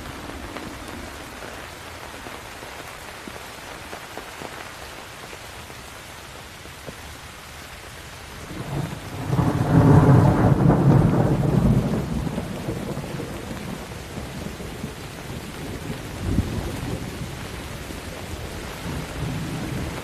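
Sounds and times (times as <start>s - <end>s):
steady rain: 0.0s - 20.0s
thunder rolling: 8.5s - 17.4s.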